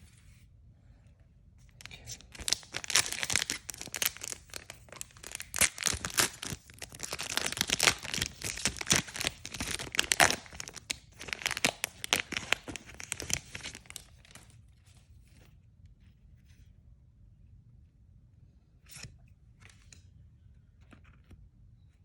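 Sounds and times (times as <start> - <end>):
foil wrapper tearing and crinkling: 2.2 - 14.4.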